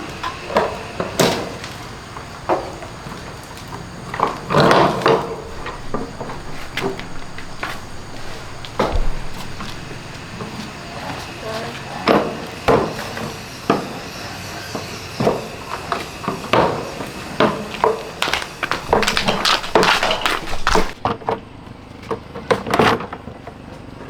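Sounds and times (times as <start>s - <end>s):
irregular knocks and clatters: 2.2s - 11.0s, 17.4s - 22.3s.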